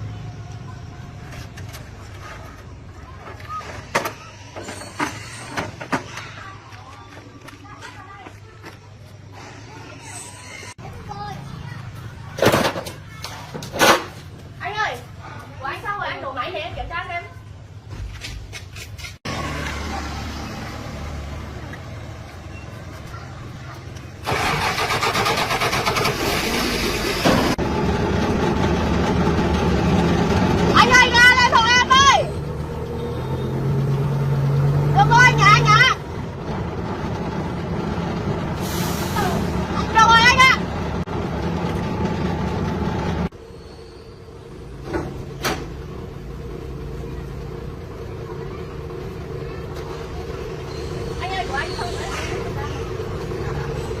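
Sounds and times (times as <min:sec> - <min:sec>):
engine starting and running: 0:23.8 - 0:43.4, 0:44.2 - 0:54.0.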